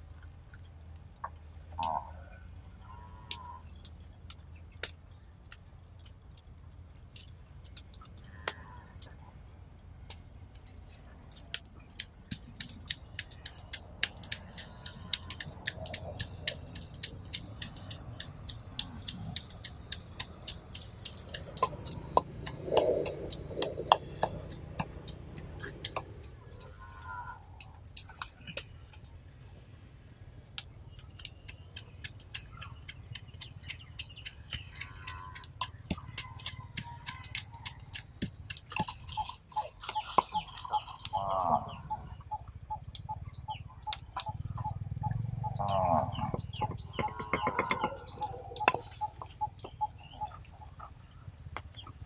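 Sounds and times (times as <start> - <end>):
wood fire crackling: 0.0 - 41.1.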